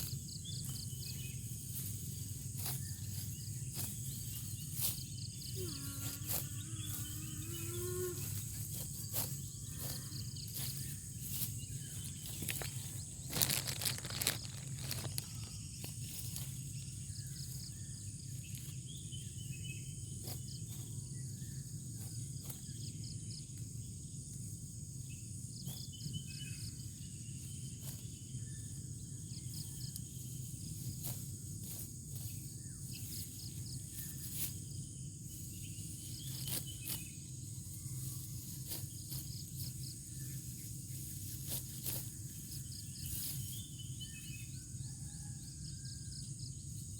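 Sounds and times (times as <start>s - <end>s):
insects droning: 0.0s - 46.9s
dry clicks and rustles: 12.5s - 15.6s.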